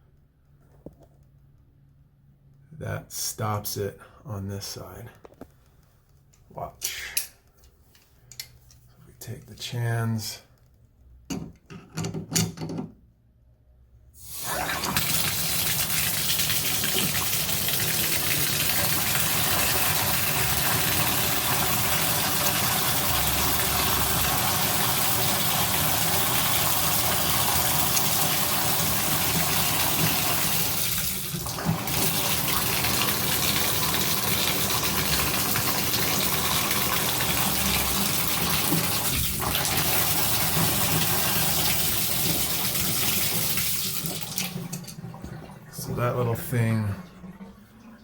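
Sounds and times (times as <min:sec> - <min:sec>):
shower water running: 0:14.2 - 0:48.0.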